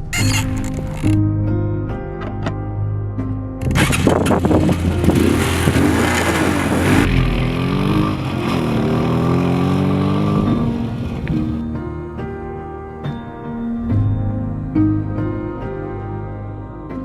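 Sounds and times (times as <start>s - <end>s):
motorcycle engine revving: 3.6s - 11.6s.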